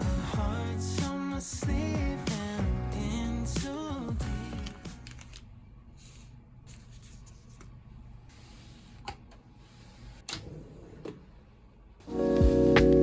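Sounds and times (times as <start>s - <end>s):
piano background music: 12.1s - 13.0s.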